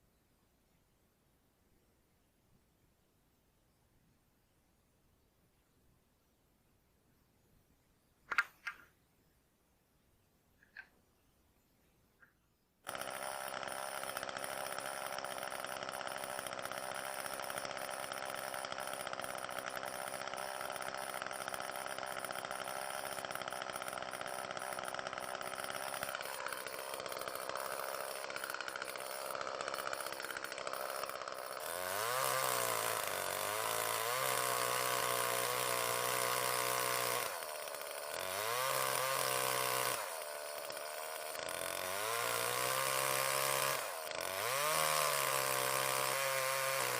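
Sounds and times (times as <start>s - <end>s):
chainsaw ripping a log: 12.8s - 46.9s.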